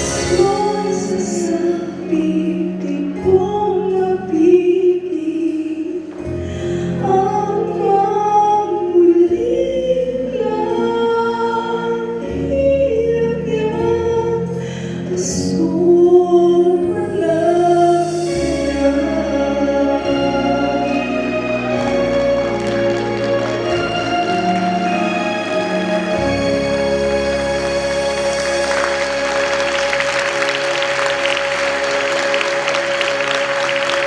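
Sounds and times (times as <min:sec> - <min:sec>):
person singing: 0:00.0 - 0:22.6.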